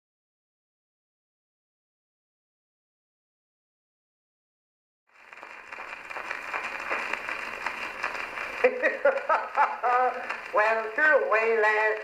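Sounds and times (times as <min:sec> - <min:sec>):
phonograph surface hiss and crackle: 0:05.1 - 0:12.0.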